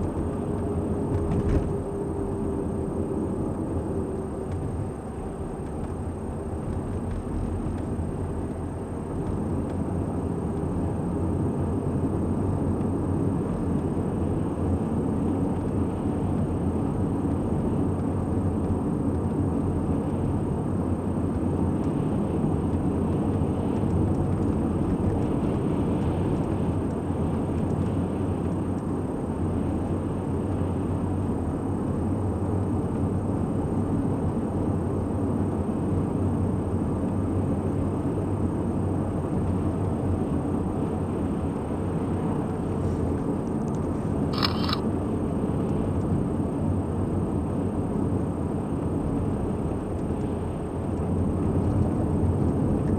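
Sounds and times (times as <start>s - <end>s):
car driving road rumble: 0.0s - 32.0s.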